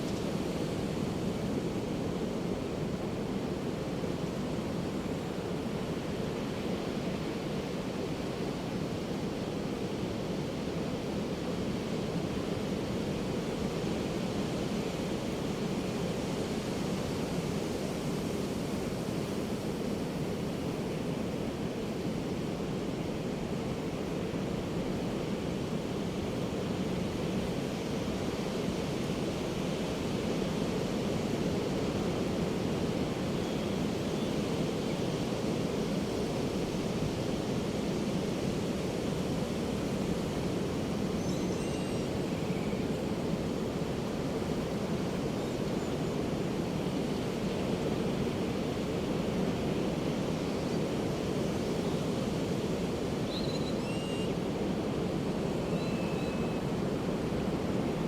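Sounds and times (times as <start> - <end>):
faint bird calls: 53.3 - 54.3.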